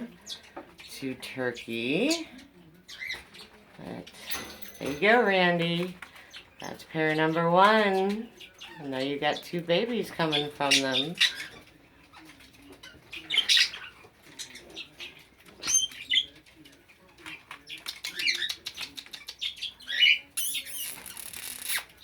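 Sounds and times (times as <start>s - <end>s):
budgerigars chirping: 2.0s - 3.6s, 6.0s - 22.0s.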